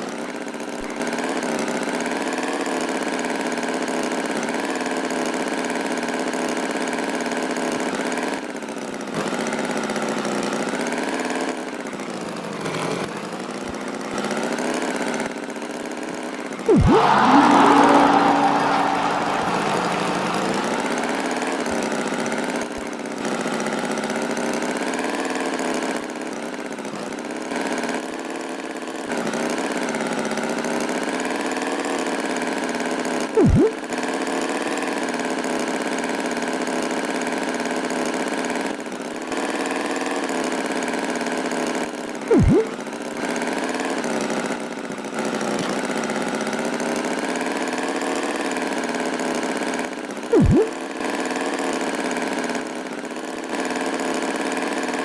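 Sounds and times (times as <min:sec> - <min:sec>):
cartoon tractor engine: 0:16.6 - 0:22.6, 0:33.4 - 0:33.8, 0:42.3 - 0:42.8, 0:50.3 - 0:50.9
loud swooping sounds: 0:16.7 - 0:21.9, 0:33.4 - 0:33.8, 0:42.3 - 0:42.7, 0:50.4 - 0:50.8.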